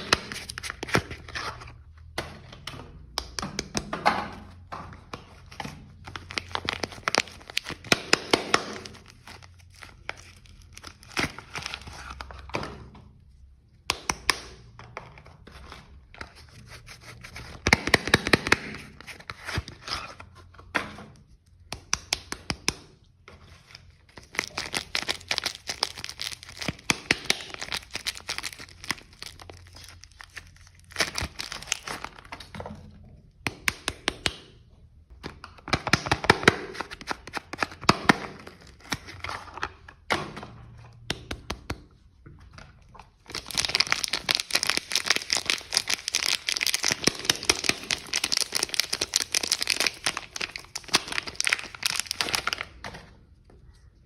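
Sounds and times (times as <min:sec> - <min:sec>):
soap wrappers crinkling and tearing: 0:00.0 - 0:02.1, 0:05.1 - 0:12.5, 0:21.9 - 0:32.5, 0:35.5 - 0:40.0, 0:42.6 - 0:52.9.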